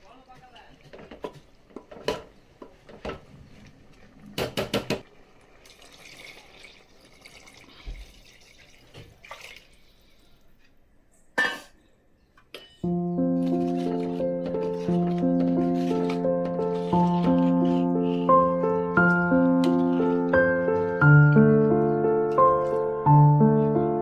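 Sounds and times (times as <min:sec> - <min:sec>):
faint water sounds: 0:00.0 - 0:10.9
utensils and pot clinking: 0:00.1 - 0:03.2, 0:11.4 - 0:11.8, 0:12.4 - 0:23.2.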